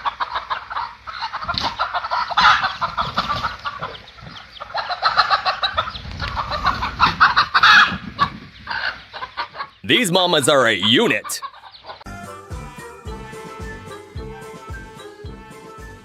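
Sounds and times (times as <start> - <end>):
chickens clucking: 0.0 - 12.1.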